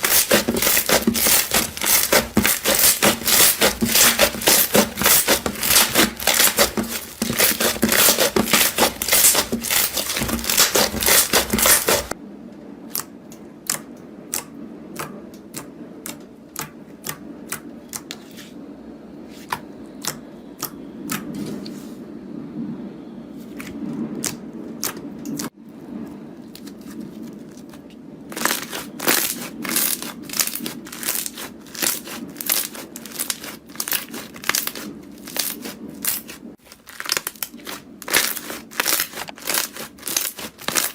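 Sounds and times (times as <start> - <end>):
crunchy material being crushed: 0.0 - 12.2, 26.5 - 40.9.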